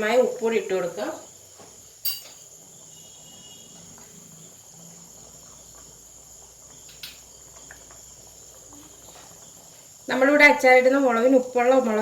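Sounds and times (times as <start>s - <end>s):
crickets trilling: 0.0s - 12.0s
sharp clink: 2.0s - 2.5s.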